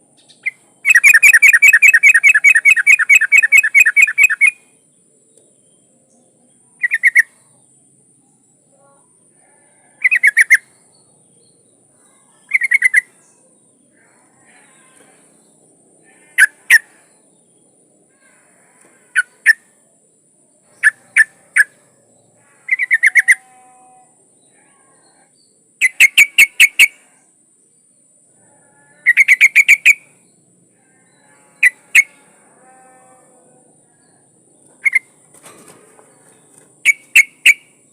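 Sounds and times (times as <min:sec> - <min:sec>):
bird chirping: 0:00.2 - 0:08.5, 0:10.0 - 0:15.6, 0:19.2 - 0:19.8, 0:20.6 - 0:23.8, 0:25.0 - 0:27.0, 0:29.1 - 0:32.3, 0:33.8 - 0:37.9.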